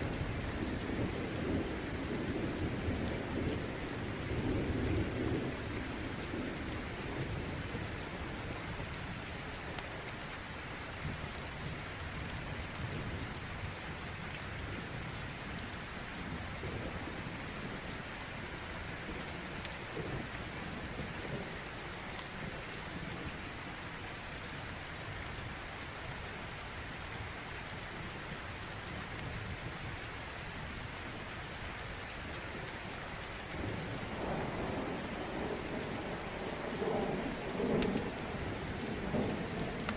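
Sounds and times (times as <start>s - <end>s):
steady rain falling: 0.0s - 39.9s
distant thunder rumbling: 33.7s - 39.9s.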